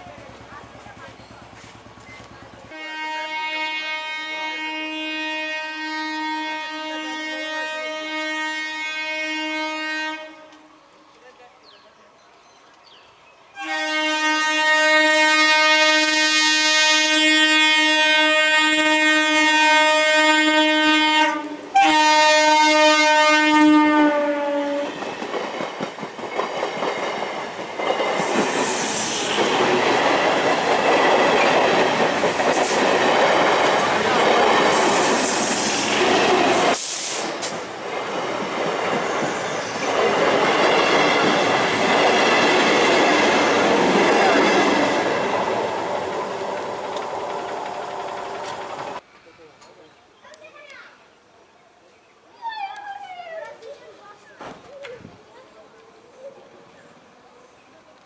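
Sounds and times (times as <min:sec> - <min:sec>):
train wheels clattering: 0:00.0 - 0:02.9, 0:24.9 - 0:49.0
train horn blasts: 0:02.7 - 0:10.8, 0:13.6 - 0:25.0.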